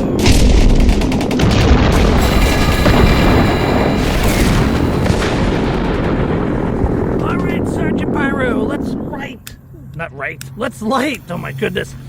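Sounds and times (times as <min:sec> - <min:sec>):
fireworks booming: 0:00.0 - 0:09.1.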